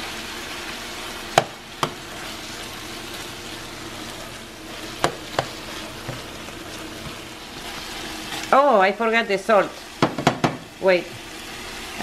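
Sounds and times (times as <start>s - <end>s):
food sizzling in a frying pan: 0.0s - 12.0s
metal spoon knocking pan: 10.0s - 10.6s.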